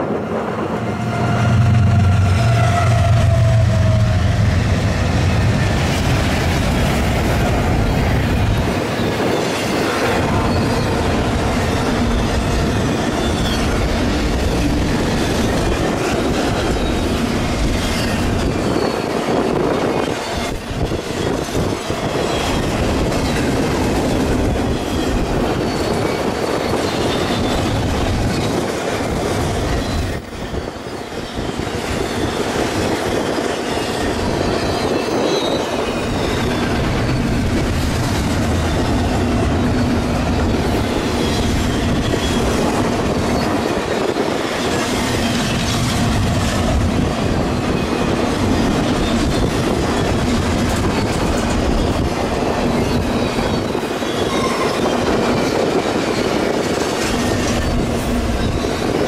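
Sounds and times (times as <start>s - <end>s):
freight train rail rumble: 0.0s - 59.0s
faint high wheel squeal: 10.3s - 11.1s, 24.1s - 28.6s, 33.2s - 37.6s, 52.7s - 56.6s, 57.3s - 59.0s.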